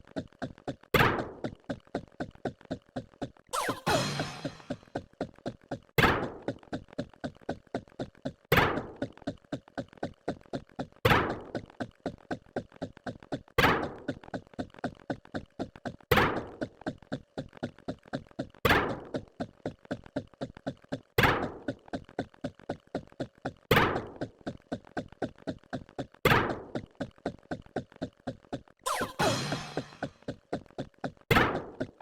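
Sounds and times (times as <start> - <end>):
louder hit: 3.6 - 4.8, 28.9 - 30.1
short thunking sound effects: 3.6 - 4.9, 28.9 - 30.1.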